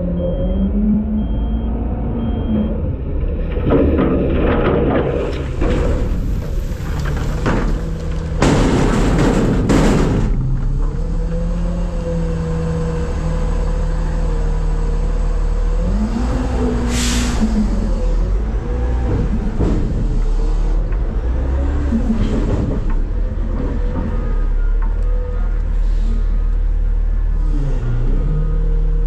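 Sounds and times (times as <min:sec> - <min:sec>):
heavy bangs: 0:03.3 - 0:11.1.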